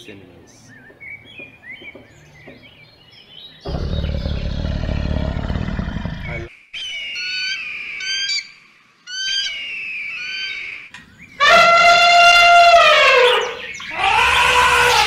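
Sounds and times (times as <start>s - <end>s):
elephant trumpeting: 11.4s - 15.0s.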